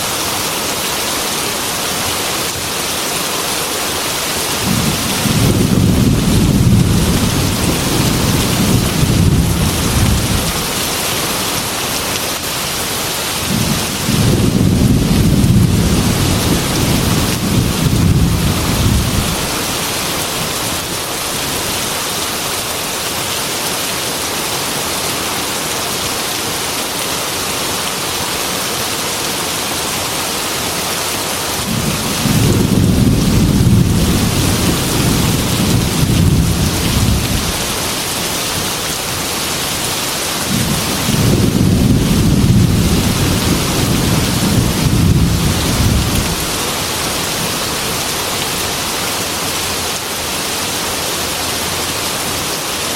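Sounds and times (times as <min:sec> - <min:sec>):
heavy rain on a glass window: 0:00.0 - 0:52.9
rumbling thunder: 0:04.6 - 0:11.0, 0:13.4 - 0:19.6, 0:31.6 - 0:38.8, 0:40.4 - 0:46.6.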